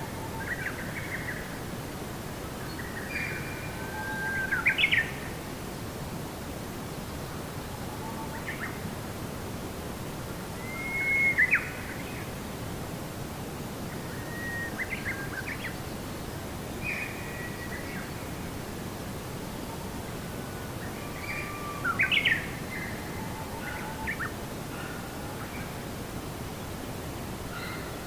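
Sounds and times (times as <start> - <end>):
outdoor ambience hiss: 0.0 - 28.0
birds singing: 2.7 - 5.2, 20.8 - 25.8.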